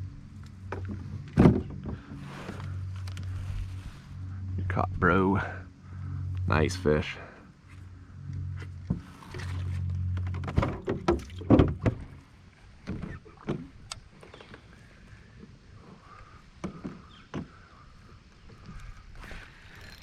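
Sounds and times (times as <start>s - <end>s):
knocks against a kayak: 0.7s - 2.0s, 10.3s - 12.1s.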